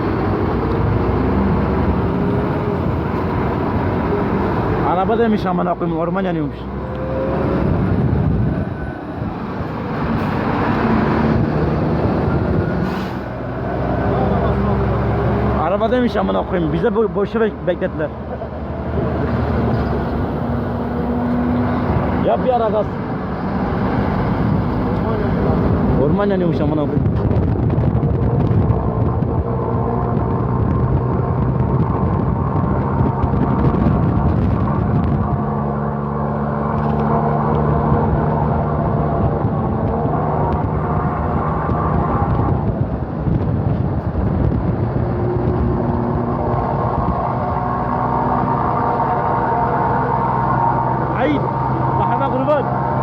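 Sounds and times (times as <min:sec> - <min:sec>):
car engine hum: 0:00.0 - 0:53.0
road noise inside car: 0:00.0 - 0:53.0.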